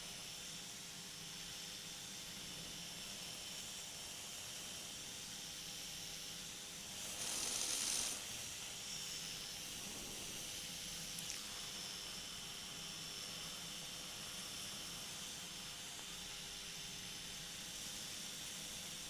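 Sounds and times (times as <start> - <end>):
steady hiss: 5.8 - 19.0.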